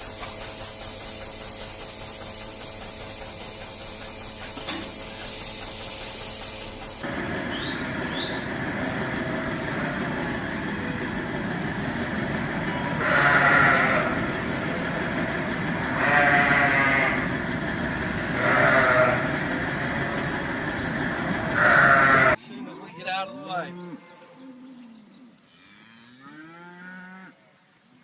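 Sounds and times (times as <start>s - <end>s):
steady background rumble: 7.0s - 22.4s
calves bawling: 12.7s - 20.3s, 21.4s - 25.4s.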